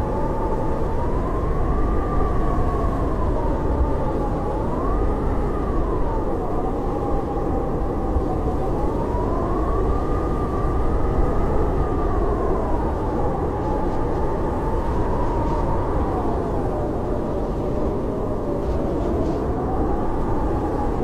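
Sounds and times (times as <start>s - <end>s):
blizzard wind howling: 0.0s - 21.0s.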